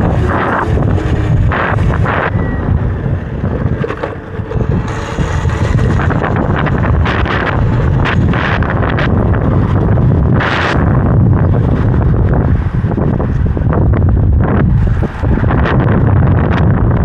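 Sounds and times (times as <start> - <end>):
wind buffeting on microphone: 0.0 - 17.0.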